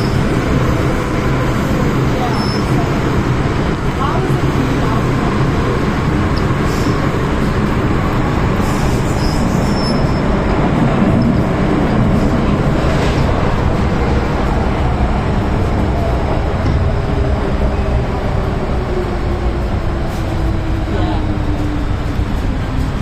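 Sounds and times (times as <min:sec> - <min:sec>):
train wheels rumbling on track: 0:00.0 - 0:23.0
wheels squealing on rail: 0:08.6 - 0:10.4.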